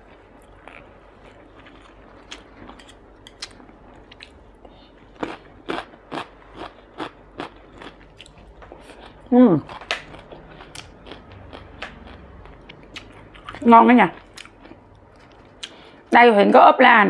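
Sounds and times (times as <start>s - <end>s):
chewing smacks: 5.2s - 13.6s, 14.2s - 15.9s.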